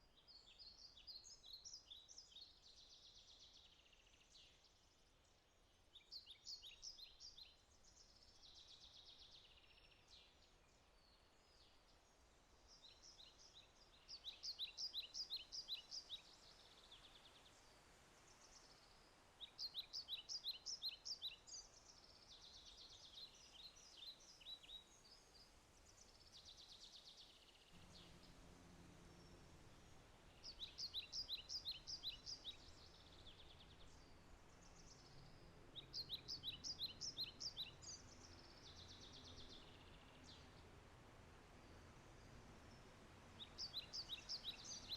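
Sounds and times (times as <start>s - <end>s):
faint steady hiss: 0.0s - 44.9s
songbird singing trilled phrases: 30.4s - 40.5s, 43.4s - 44.9s.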